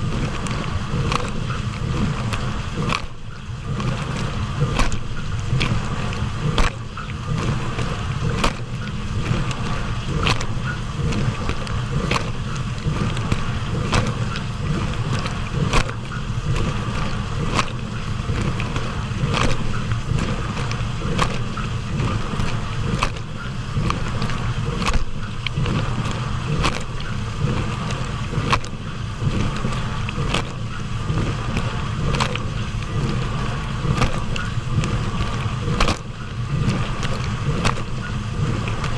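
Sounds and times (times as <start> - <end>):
dishwasher low hum: 0.0 - 38.9
sharp water splashes: 0.0 - 38.9
spraying water rush: 0.0 - 38.9.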